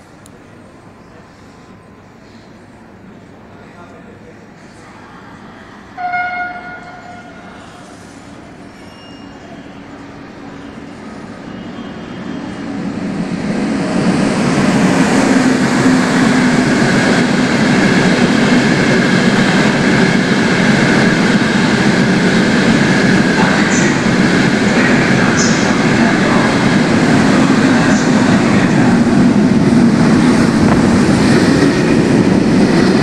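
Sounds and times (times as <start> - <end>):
train wheels rumbling on rails: 6.6 - 33.0
high wheel squeaks: 8.7 - 9.8.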